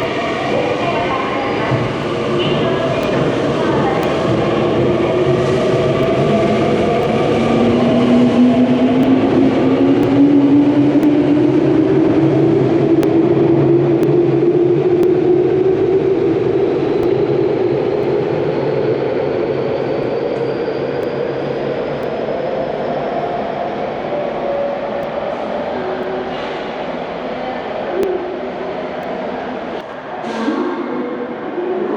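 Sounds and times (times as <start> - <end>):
train running rumble: 0.0 - 24.2.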